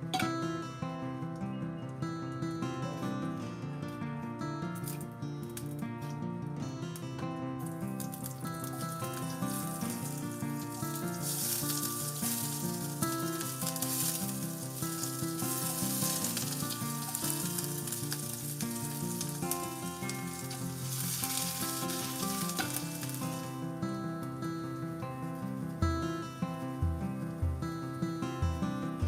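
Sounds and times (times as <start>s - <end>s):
background music: 0.0s - 29.0s
food sizzling in a pan: 7.6s - 24.9s.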